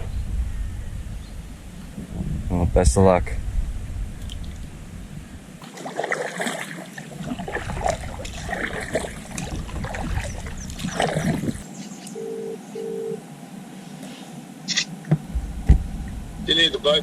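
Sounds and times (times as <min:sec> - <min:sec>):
water splashing around kayak: 0:05.6 - 0:11.7
short beeps: 0:12.2 - 0:13.2.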